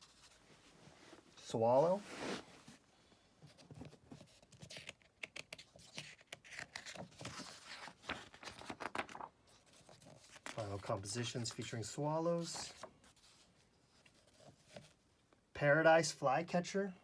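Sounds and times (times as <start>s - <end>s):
paper pages being turned: 0.0s - 0.4s, 3.5s - 15.0s.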